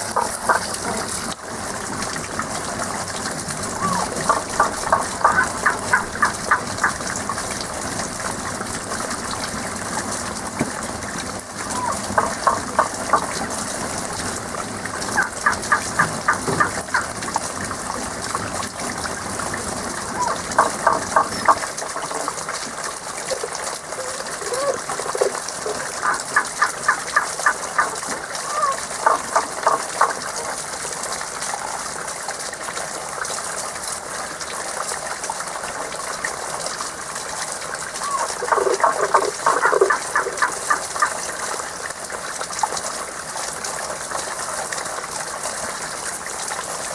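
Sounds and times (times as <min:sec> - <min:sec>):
frogs croaking: 0:00.0 - 0:01.0, 0:03.7 - 0:07.6, 0:11.6 - 0:13.4, 0:15.0 - 0:17.1, 0:20.1 - 0:22.4, 0:23.9 - 0:30.3, 0:38.0 - 0:41.4
running water: 0:00.0 - 0:46.9.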